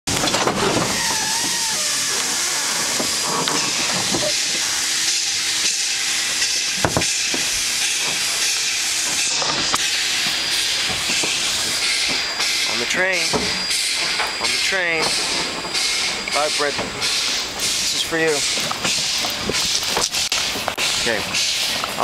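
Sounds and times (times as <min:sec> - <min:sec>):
moving train rushing: 0:00.1 - 0:22.0.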